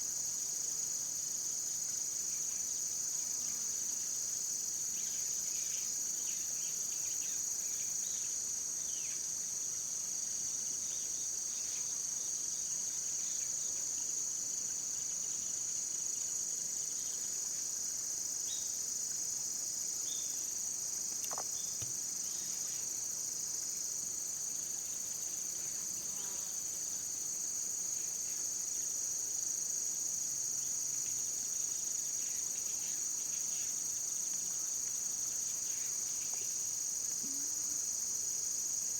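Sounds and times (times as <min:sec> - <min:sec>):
insect chorus trilling: 0:00.0 - 0:38.9.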